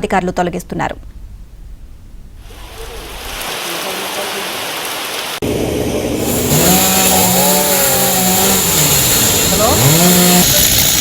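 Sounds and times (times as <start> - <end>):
heavy rain hissing: 2.4 - 11.0.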